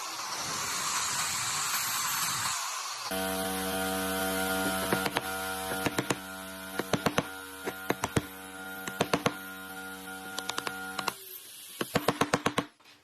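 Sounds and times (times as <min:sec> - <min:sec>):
steady electric hum: 0:03.1 - 0:11.1.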